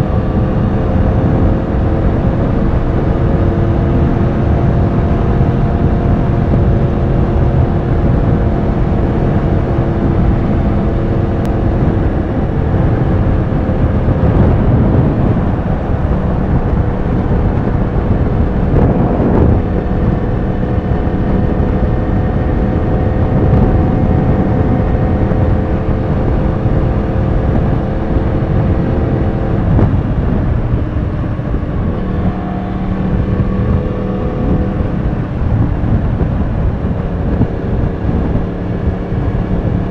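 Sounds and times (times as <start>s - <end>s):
heavy wind rush: 0.0s - 39.9s
motorcycle engine cruising: 0.0s - 39.9s.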